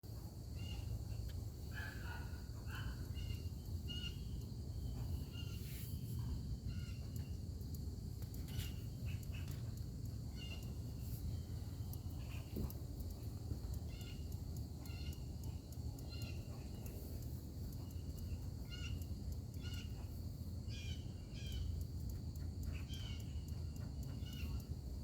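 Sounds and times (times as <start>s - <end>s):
short high clicks and chirps: 5.4s - 24.8s.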